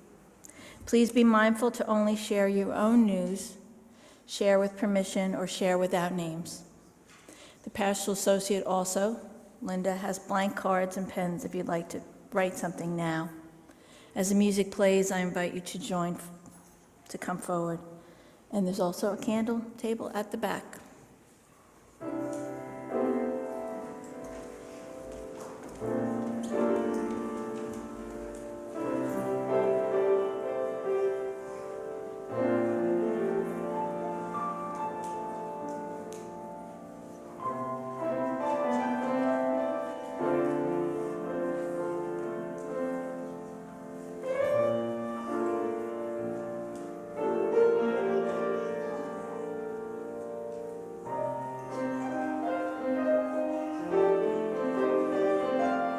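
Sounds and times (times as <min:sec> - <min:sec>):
piano chords: 0:21.9 - 0:55.9.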